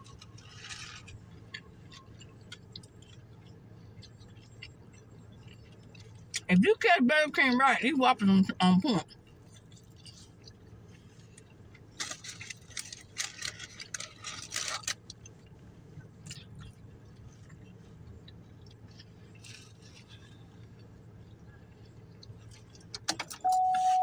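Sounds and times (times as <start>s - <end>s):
low steady hum: 0.0s - 24.0s
wrapper crinkling: 12.0s - 15.0s.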